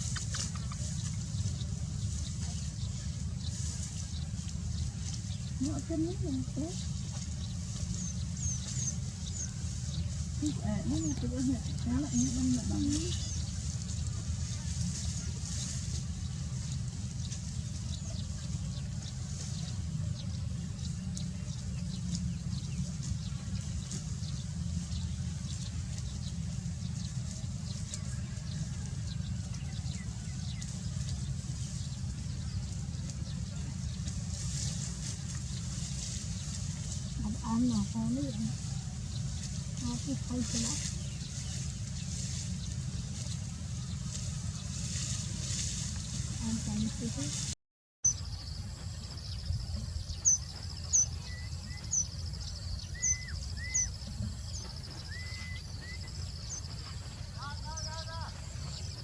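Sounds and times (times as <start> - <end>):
small birds chirping: 0.0 - 59.0
steady low rumble: 0.0 - 59.0
whistled bird notes: 49.2 - 57.0.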